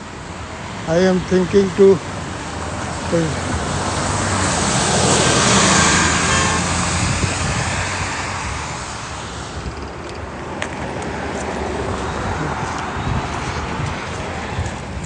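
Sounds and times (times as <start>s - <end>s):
cars passing on a street: 0.0s - 15.0s.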